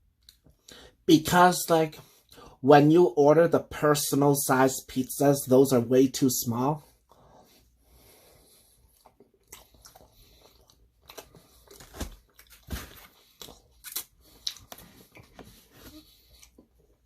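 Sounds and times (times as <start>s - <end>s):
person chewing crunchy food: 8.4s - 17.0s.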